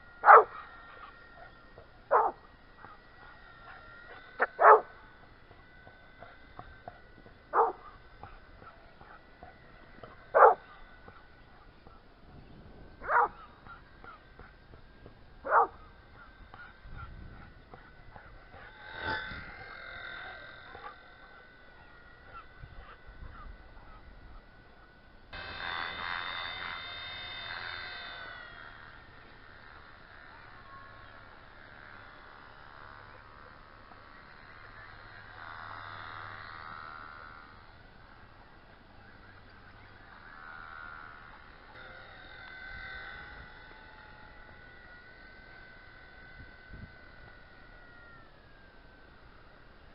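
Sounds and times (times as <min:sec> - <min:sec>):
faint high whine: 0:00.0 - 0:49.9
steady low hum: 0:00.0 - 0:49.9
dog barking: 0:00.2 - 0:01.1, 0:02.1 - 0:02.4, 0:04.4 - 0:04.9, 0:07.5 - 0:08.0, 0:10.3 - 0:10.6, 0:13.0 - 0:13.5, 0:15.4 - 0:15.8.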